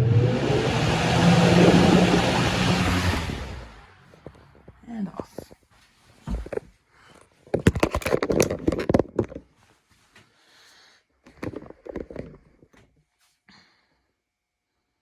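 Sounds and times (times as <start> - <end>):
rapid knocks and rustles: 4.1 - 10.2.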